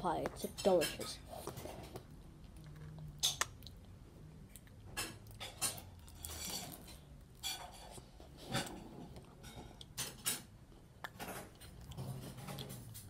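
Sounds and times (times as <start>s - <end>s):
pastry crust crackling when chewed: 1.9s - 10.2s.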